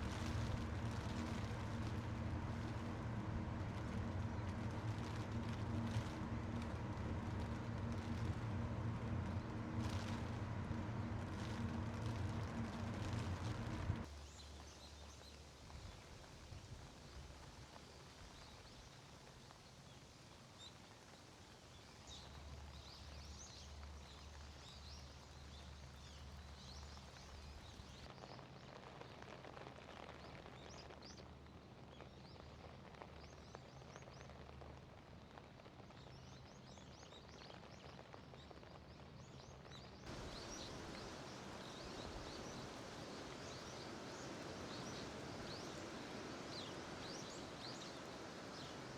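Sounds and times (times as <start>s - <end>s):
faint outdoor ambience: 0.0s - 48.9s
small birds chirping: 40.1s - 48.9s.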